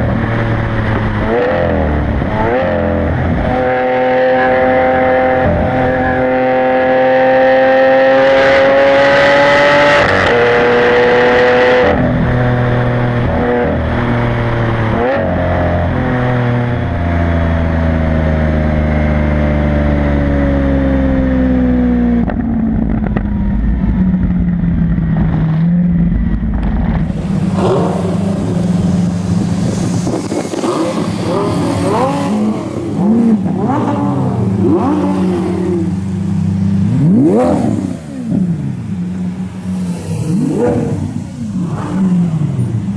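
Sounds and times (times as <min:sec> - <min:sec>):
sports car engine accelerating: 0:00.0 - 0:42.9
rushing noise: 0:23.6 - 0:42.9.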